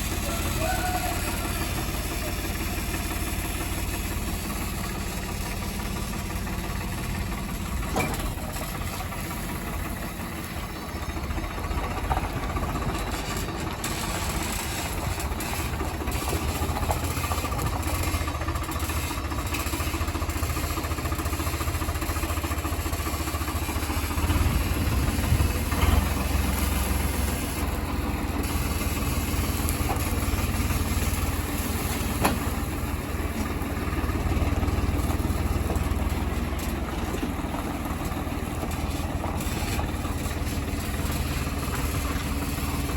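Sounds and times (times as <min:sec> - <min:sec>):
diesel engine rumbling: 0:00.0 - 0:42.9.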